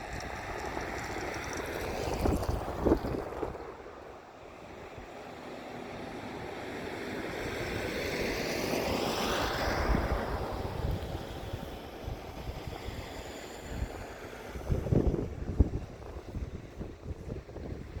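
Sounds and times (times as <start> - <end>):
wind buffeting microphone: 0.0 - 5.1, 9.2 - 18.0.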